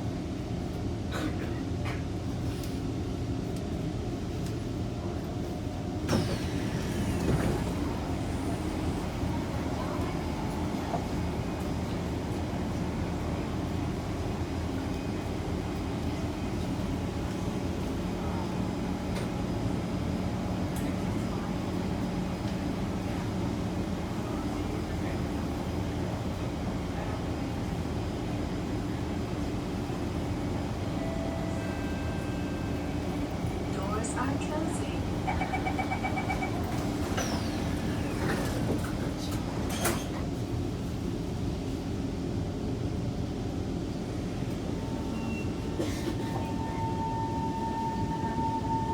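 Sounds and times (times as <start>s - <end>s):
metro train rumbling in tunnel: 0.0s - 48.9s
train doors sliding shut: 6.0s - 11.7s, 36.5s - 40.5s, 45.2s - 47.2s
train door-closing beeps: 6.0s - 12.4s, 30.4s - 40.2s, 44.8s - 48.9s.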